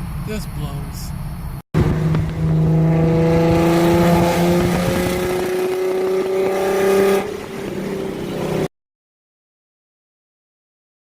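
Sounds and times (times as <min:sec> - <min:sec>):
car engine running while driving: 0:00.0 - 0:08.7.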